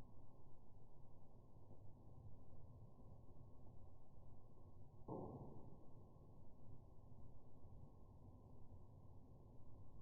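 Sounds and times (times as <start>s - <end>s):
muffled rumble of fire burning: 0.0s - 10.0s.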